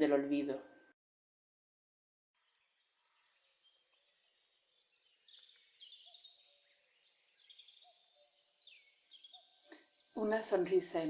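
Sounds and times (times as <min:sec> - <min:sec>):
birdsong chirps: 0:02.4 - 0:11.0.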